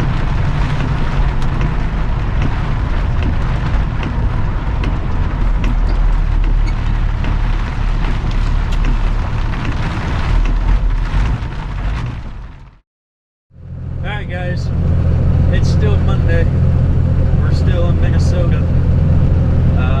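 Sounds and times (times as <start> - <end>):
rain ticking on cab: 0.0 - 12.8
truck engine drone: 0.0 - 12.8, 13.6 - 20.0.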